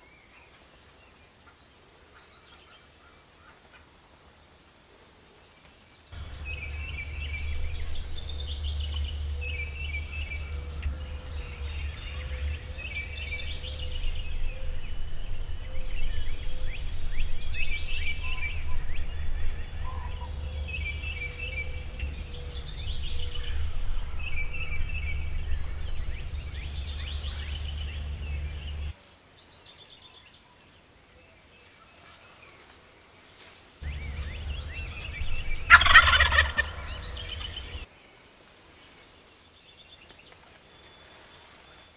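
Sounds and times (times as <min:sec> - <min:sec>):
birds calling: 0:05.4 - 0:41.9
steady low rumble: 0:06.2 - 0:29.0, 0:33.8 - 0:37.9.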